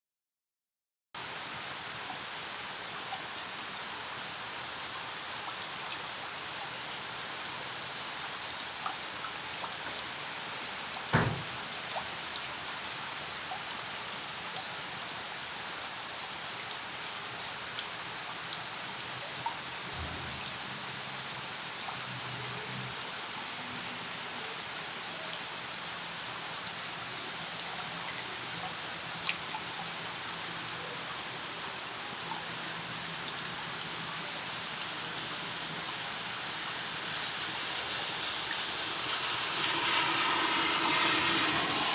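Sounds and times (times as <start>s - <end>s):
heavy rain: 1.2s - 41.9s
sharp knock: 11.2s - 11.6s.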